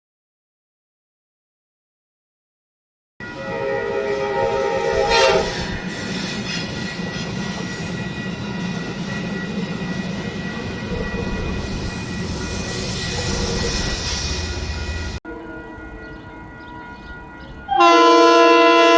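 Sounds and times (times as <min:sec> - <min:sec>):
train horn chord: 0:03.2 - 0:05.8, 0:17.7 - 0:18.9
train rumbling by: 0:03.2 - 0:18.9.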